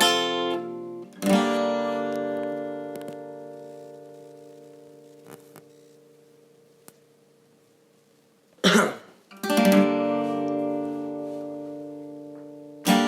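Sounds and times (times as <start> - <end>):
acoustic guitar strumming chords: 0.0 - 7.2, 8.6 - 13.0.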